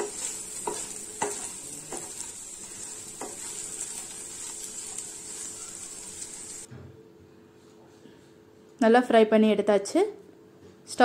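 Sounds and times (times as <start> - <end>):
metal spatula scraping a pan: 0.0 - 6.7
slices sizzling in oil: 0.0 - 6.7.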